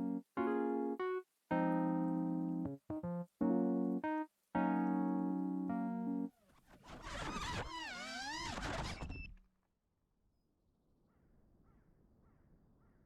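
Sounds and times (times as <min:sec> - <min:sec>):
quadcopter motors whining: 0:06.8 - 0:09.3.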